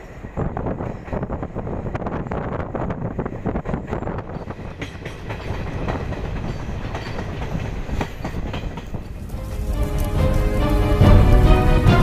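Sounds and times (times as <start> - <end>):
train wheels knocking over rail joints: 3.6 - 12.0.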